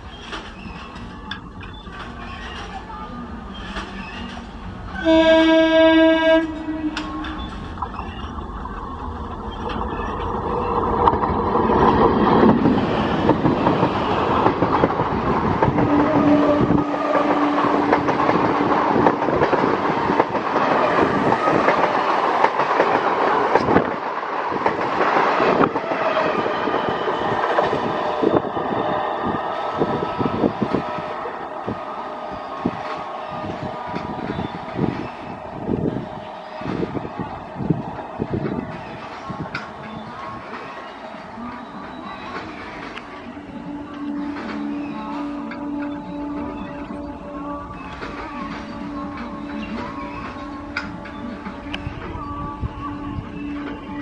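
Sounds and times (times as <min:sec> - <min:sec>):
wheels clacking over rail joints: 0:00.0 - 0:28.5, 0:32.6 - 0:47.0, 0:47.7 - 0:52.2
train wheels on rails: 0:00.0 - 0:54.0
train air horn blast: 0:05.0 - 0:07.4, 0:15.7 - 0:19.3, 0:25.5 - 0:37.8, 0:43.2 - 0:53.8.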